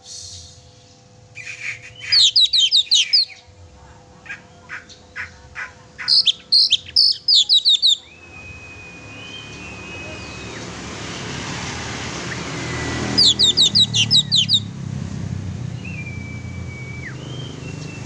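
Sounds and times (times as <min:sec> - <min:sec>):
bird singing whistled notes: 0:01.3 - 0:03.4, 0:06.0 - 0:11.2, 0:12.2 - 0:14.7, 0:15.7 - 0:18.0.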